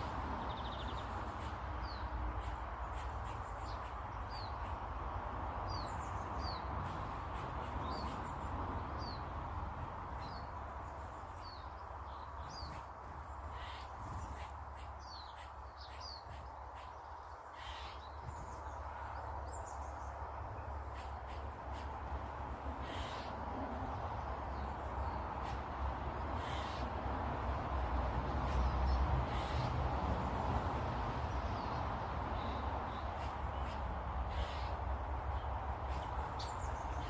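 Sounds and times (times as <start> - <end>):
small birds chirping: 0.0 - 27.0, 28.3 - 29.8, 31.3 - 37.0.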